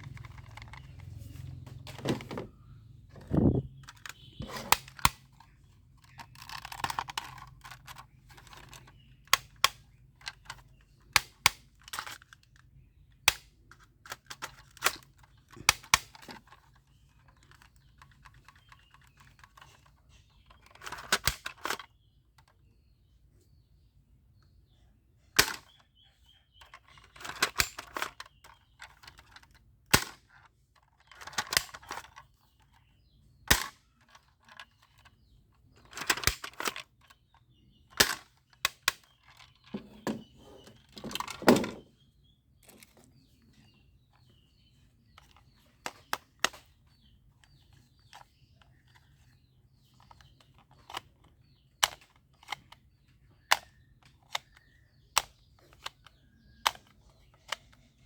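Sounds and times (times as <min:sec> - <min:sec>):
plastic clattering: 0:00.0 - 0:08.9, 0:37.8 - 0:42.0
toy gun snaps: 0:25.4 - 0:25.6, 0:33.5 - 0:33.8.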